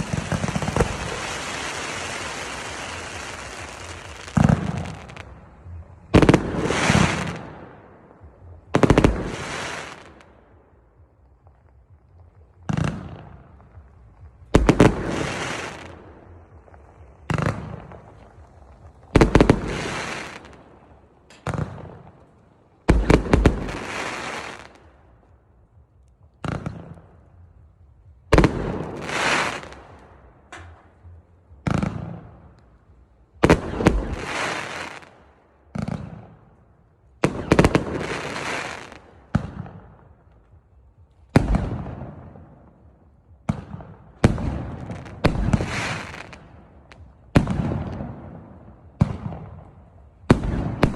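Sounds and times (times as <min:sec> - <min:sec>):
fireworks bangs: 0:00.0 - 0:10.3, 0:12.6 - 0:24.8, 0:28.3 - 0:32.5, 0:33.4 - 0:36.4, 0:37.2 - 0:40.1, 0:43.4 - 0:50.9.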